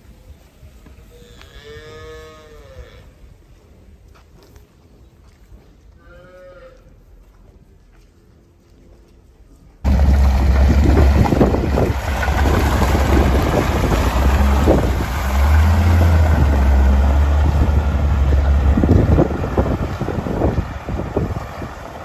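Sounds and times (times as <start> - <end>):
loud low engine drone: 9.8 - 22.0
wind noise on microphone: 9.8 - 22.0
rattling: 9.9 - 21.4.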